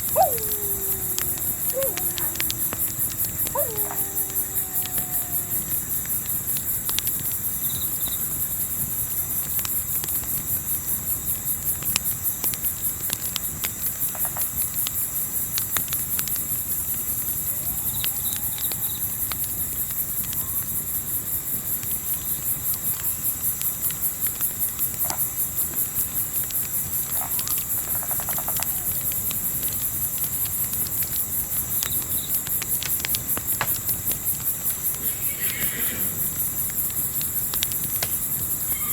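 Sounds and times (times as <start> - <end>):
crickets chirping: 0.0 - 6.5, 33.4 - 38.9
campfire crackling: 0.0 - 7.6, 23.5 - 38.9.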